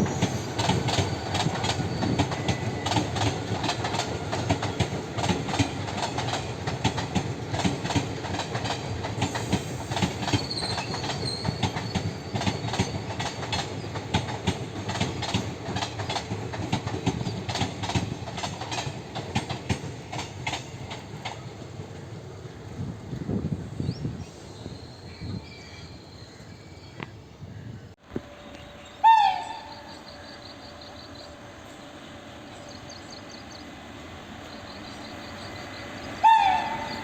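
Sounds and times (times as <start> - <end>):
train wheels clattering on rails: 0.0 - 22.2
train rumble: 0.0 - 26.2, 28.0 - 37.0.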